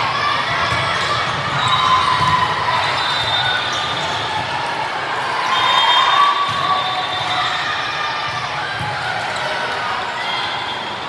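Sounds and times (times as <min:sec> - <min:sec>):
ball bouncing on court: 0:00.4 - 0:04.7.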